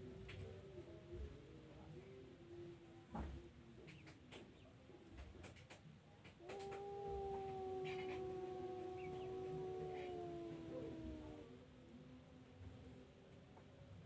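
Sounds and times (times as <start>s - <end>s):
faint clicks: 5.4s - 8.3s
cat yowling: 6.4s - 11.5s.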